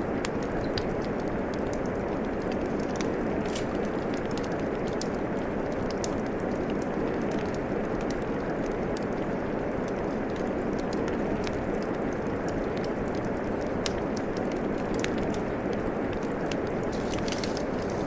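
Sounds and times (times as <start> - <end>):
steady rain: 0.0 - 18.0
wood fire crackling: 0.0 - 18.0.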